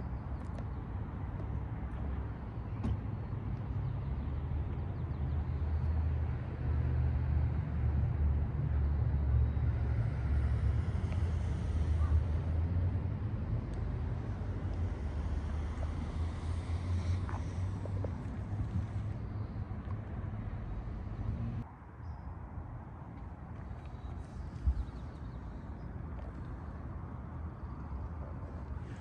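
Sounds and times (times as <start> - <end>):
diesel engine running: 8.9 - 21.6.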